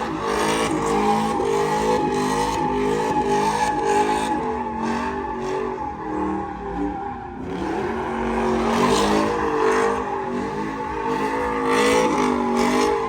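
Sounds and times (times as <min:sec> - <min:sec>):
tires squealing: 0:00.0 - 0:13.0
vehicle engine revving hard: 0:07.4 - 0:13.0.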